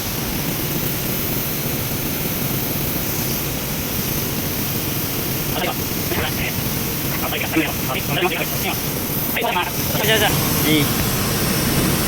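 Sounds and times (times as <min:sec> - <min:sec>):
mechanical low rumble with hiss: 0:01.2 - 0:12.0.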